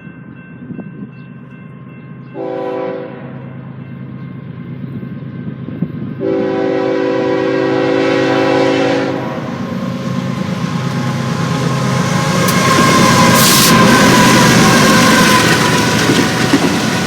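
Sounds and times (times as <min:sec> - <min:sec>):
train engine and wheel noise: 0:00.0 - 0:17.0
locomotive air horn blast: 0:02.4 - 0:03.4, 0:06.2 - 0:09.6, 0:12.4 - 0:14.7.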